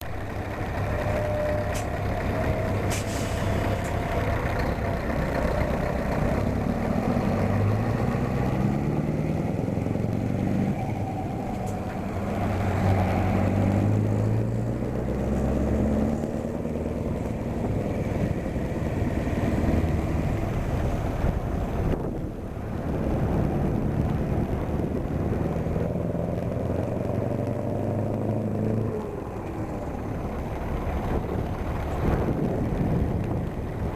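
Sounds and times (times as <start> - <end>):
diesel truck engine shifting gears: 0.0 - 33.9
sharp hiss of air: 2.9 - 3.8.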